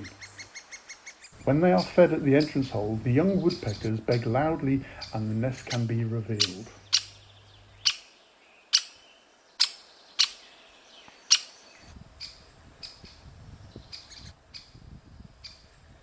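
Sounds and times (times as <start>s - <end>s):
woodpecker sharp calls: 0.0s - 13.2s
young woodpeckers begging: 0.0s - 14.8s.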